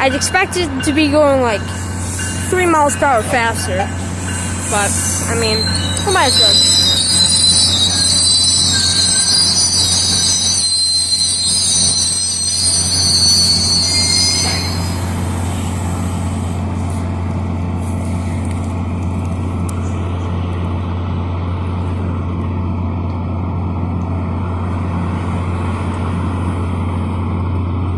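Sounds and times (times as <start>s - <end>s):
steel wheel squeal: 0.0s - 17.0s
train rolling rumble: 0.0s - 27.9s.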